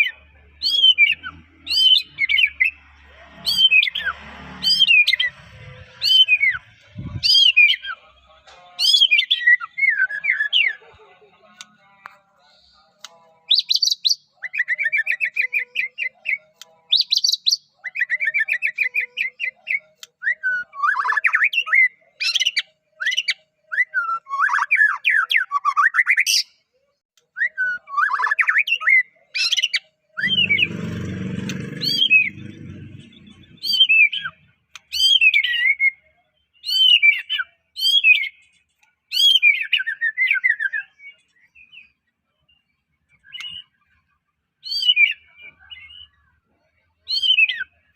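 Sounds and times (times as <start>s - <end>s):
songbird singing trilled phrases: 13.5s - 23.3s.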